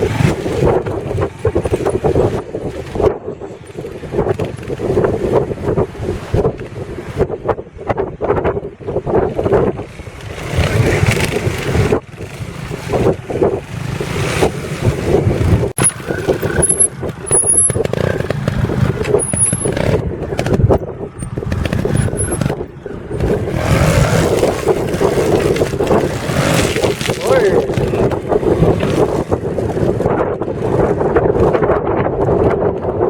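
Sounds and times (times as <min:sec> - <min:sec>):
motorcycle engine revving: 0:00.0 - 0:03.0, 0:09.6 - 0:31.6
wind noise on microphone: 0:00.0 - 0:33.0.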